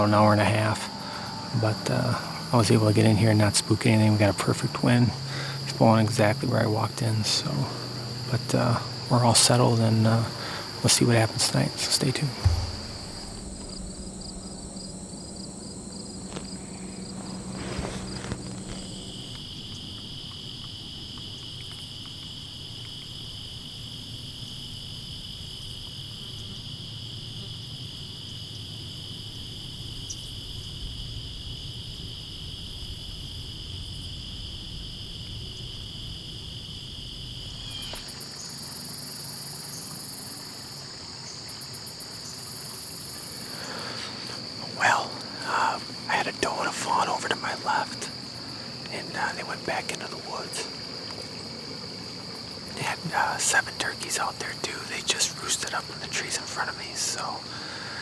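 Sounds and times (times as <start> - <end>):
crickets and insects trilling: 0.0 - 58.0
faint low rumble: 10.3 - 19.4.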